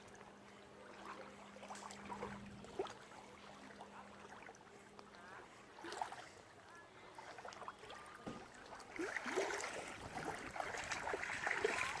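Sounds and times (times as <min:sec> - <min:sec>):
pond water splashing: 0:00.0 - 0:12.0.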